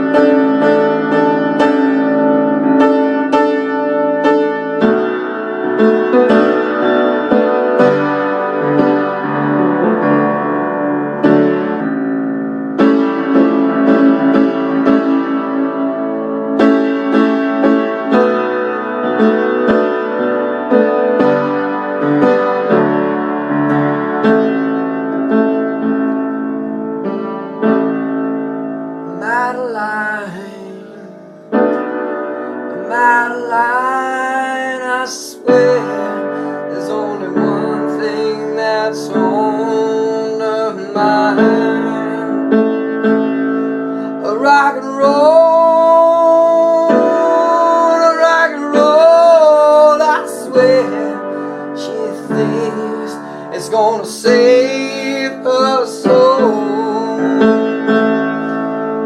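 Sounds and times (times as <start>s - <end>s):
slow piano chords: 0.0s - 59.0s
man singing: 29.1s - 31.2s, 32.7s - 42.7s, 44.1s - 58.6s.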